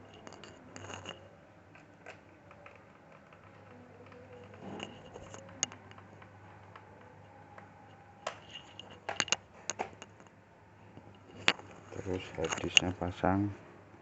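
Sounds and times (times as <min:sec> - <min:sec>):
plastic casing clicks and scraping: 0:00.0 - 0:10.3.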